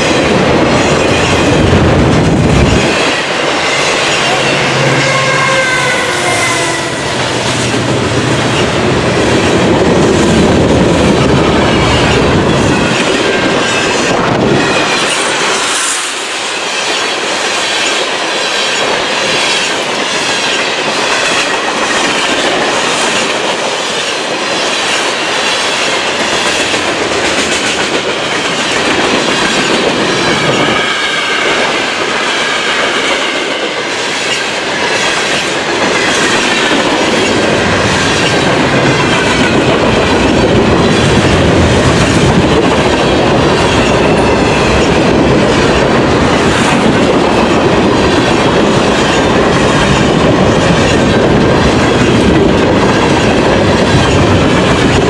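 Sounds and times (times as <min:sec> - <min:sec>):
high wheel squeal: 0:03.6 - 0:07.4.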